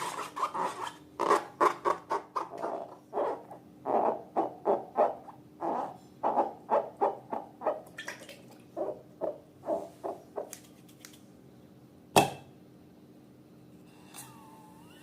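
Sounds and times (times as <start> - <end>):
sharp pop: 12.2 - 12.5.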